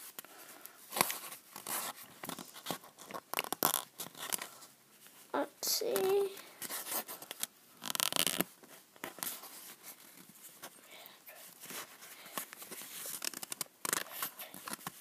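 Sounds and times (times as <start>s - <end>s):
paper sticker peeling and rustling: 11.6s - 15.0s.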